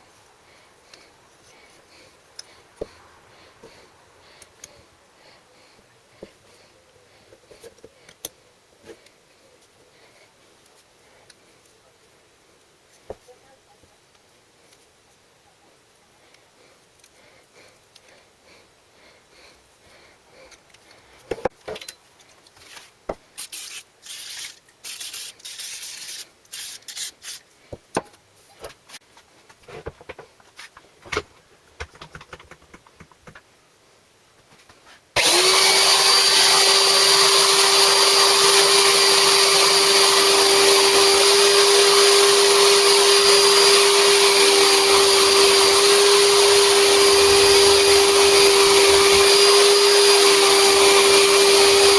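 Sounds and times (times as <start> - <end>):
tools and parts clicking: 21.6 - 22.6
high-speed electric motor whining: 35.2 - 51.9.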